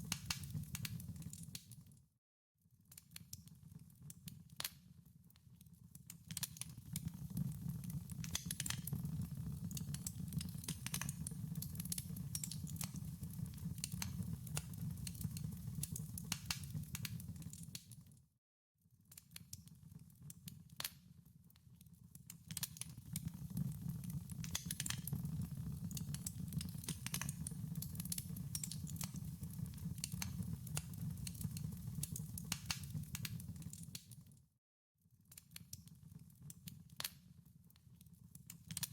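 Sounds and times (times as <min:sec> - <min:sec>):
wood fire crackling: 0:00.0 - 0:01.6, 0:06.4 - 0:17.8, 0:22.5 - 0:34.2.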